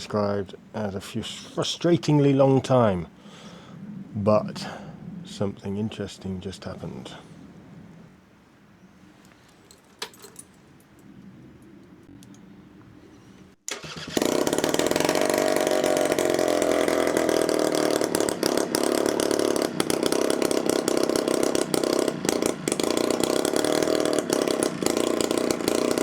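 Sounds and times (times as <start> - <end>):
loud two-stroke engine running: 13.7 - 26.0.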